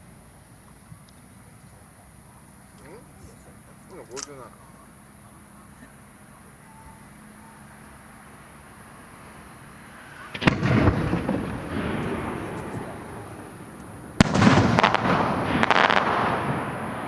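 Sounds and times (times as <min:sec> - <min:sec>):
firework shells bursting: 0:09.9 - 0:17.0.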